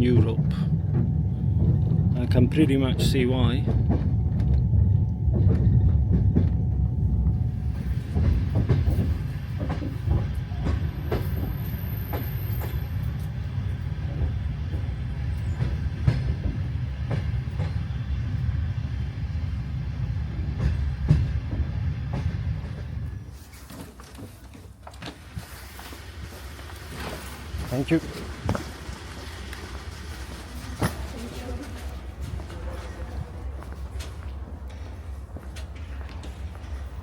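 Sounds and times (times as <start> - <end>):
wheels clacking over rail joints: 0.0 - 18.7, 20.2 - 37.0
train rumble on rails: 0.0 - 37.0.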